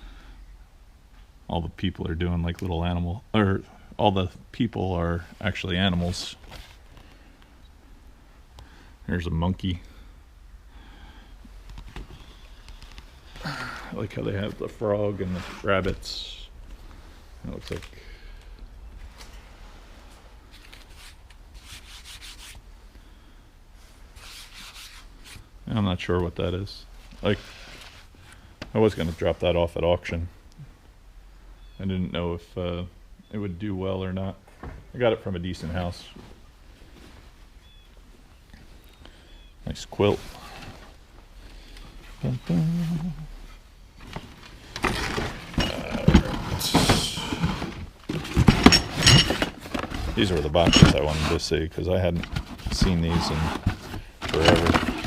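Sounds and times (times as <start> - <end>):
rustling and rubbing of objects: 5.1 - 7.6, 11.5 - 18.0, 18.9 - 22.9, 23.7 - 30.0, 34.5 - 39.0, 39.7 - 55.0
rustling clatter: 44.0 - 51.5, 52.1 - 55.0
boxes being handled clattering: 44.0 - 55.0.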